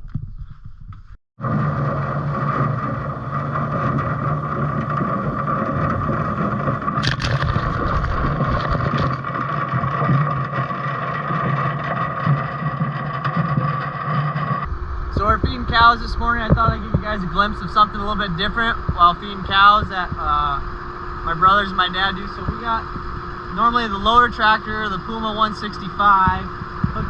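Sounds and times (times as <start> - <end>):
constant whine: 0.0 - 27.0
tractor engine running: 1.4 - 27.0.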